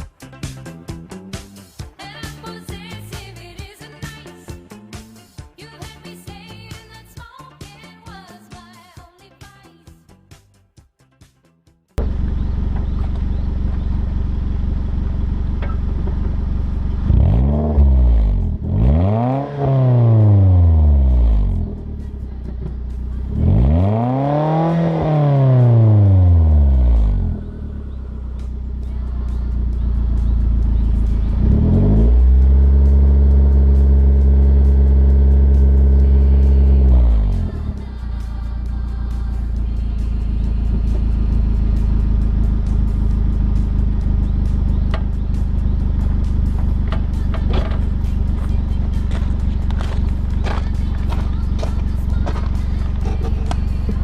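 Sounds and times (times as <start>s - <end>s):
car engine idling and revving: 12.0s - 54.0s.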